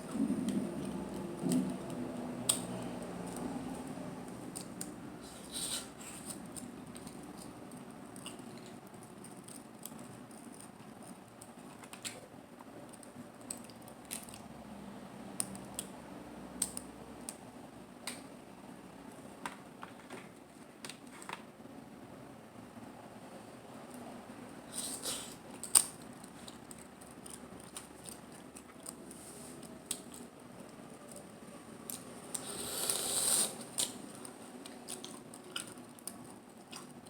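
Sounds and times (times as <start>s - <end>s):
wet chewing: 24.8s - 37.0s.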